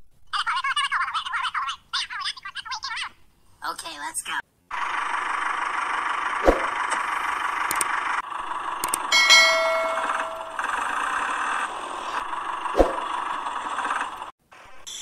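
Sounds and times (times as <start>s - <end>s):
metallic clang: 9.2s - 10.7s.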